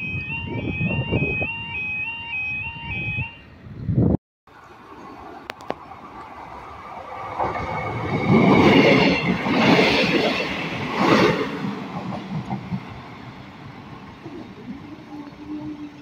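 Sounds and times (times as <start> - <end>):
train wheels on rails: 4.8 - 16.0.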